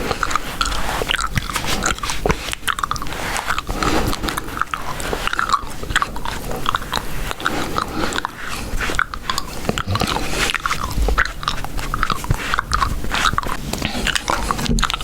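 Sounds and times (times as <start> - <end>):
gum chewing wet smacks: 0.0 - 15.0.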